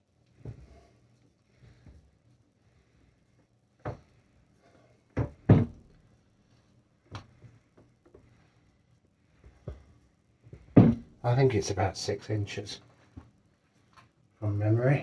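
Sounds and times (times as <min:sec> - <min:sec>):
faint steady hum: 0:00.0 - 0:15.0
milling machine knocks and clunks: 0:05.2 - 0:05.8, 0:10.6 - 0:11.1.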